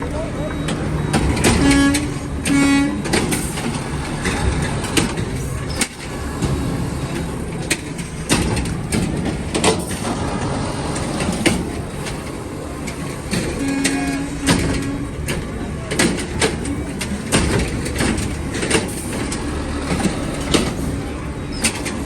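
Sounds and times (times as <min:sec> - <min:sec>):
clanks and rattles: 0:00.0 - 0:22.0
garbage truck engine rumble: 0:00.0 - 0:22.0.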